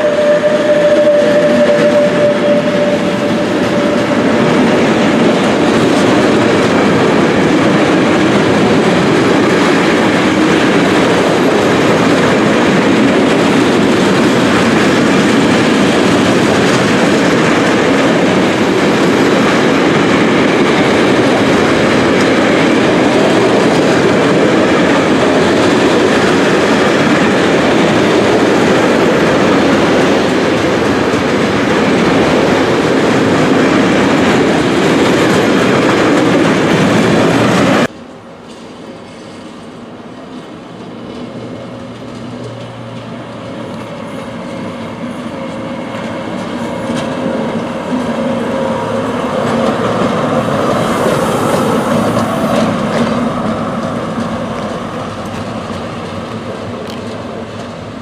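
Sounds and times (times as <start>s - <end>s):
wagon wheels rumbling and rattling: 3.6s - 37.9s.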